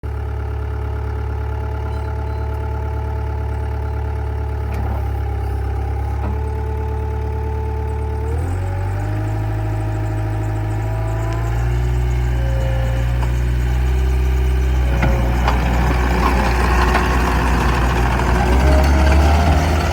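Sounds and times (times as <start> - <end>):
skid steer engine drone: 0.0 - 19.9.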